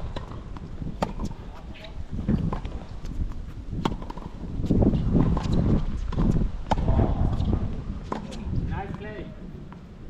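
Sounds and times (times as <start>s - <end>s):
tennis ball hit by rackets: 0.0s - 1.4s, 3.8s - 4.3s, 5.2s - 9.0s
wind buffeting microphone: 0.0s - 10.0s.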